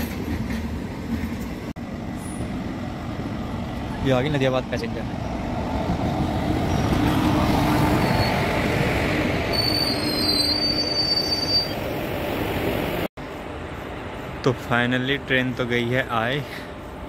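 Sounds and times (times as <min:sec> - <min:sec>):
train wheels rumbling on rails: 0:00.0 - 0:10.7
high wheel squeals: 0:07.8 - 0:08.7, 0:09.5 - 0:11.8.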